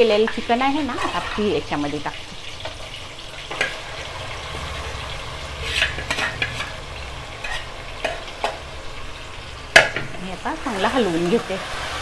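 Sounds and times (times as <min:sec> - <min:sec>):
scraping in a pan: 0:00.0 - 0:09.2
oil sizzling: 0:00.0 - 0:12.0.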